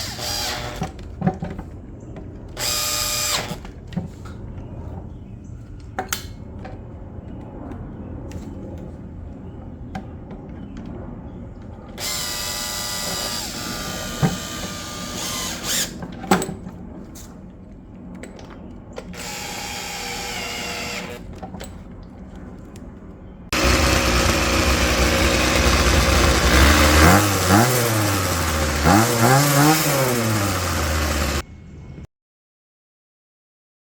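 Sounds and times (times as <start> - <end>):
loud motor revving: 0.0 - 0.8, 2.6 - 3.6, 12.0 - 16.0, 23.6 - 31.4
power driver motor whine: 0.0 - 0.9, 2.6 - 3.6, 12.0 - 16.0, 19.2 - 21.2, 23.6 - 31.4.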